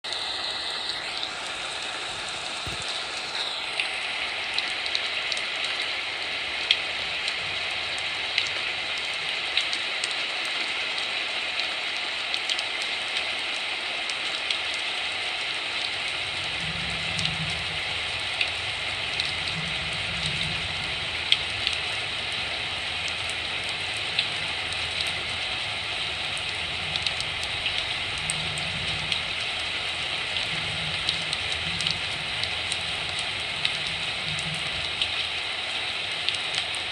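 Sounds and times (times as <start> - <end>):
heavy rain hissing: 0.0 - 36.9
raindrops dripping: 0.0 - 36.9
low uneven rumble: 15.9 - 36.4.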